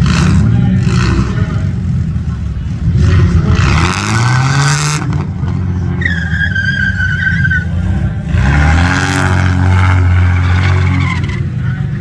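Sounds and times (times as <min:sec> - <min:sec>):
car engine revving: 0:00.0 - 0:12.0
tyres squealing: 0:05.9 - 0:08.5, 0:09.1 - 0:11.8.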